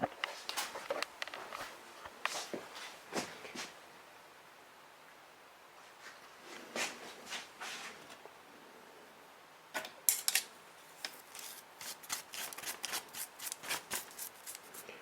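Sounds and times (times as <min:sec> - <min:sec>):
soft rustles: 0:05.8 - 0:08.2.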